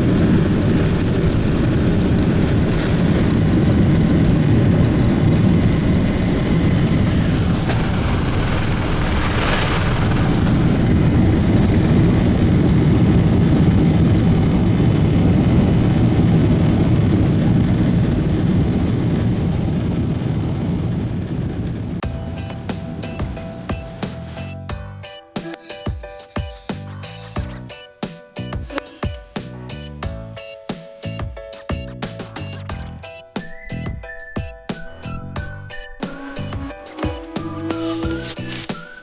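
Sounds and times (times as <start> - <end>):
rushing air in cabin: 0.0 - 24.4, 33.4 - 39.0
jet engines rumbling: 0.0 - 24.6, 32.3 - 39.0.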